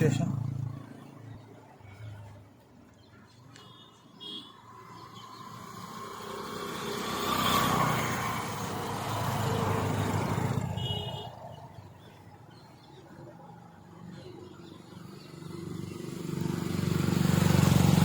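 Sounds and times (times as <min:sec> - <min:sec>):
vehicle passing by: 0:04.8 - 0:10.8, 0:14.8 - 0:18.0.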